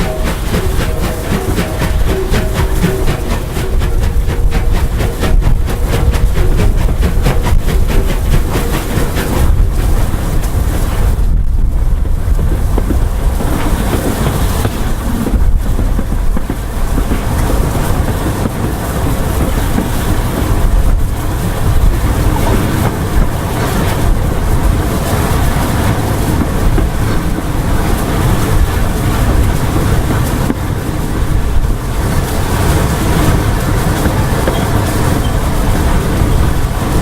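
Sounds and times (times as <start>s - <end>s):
steam train low rumble: 0.0s - 37.0s.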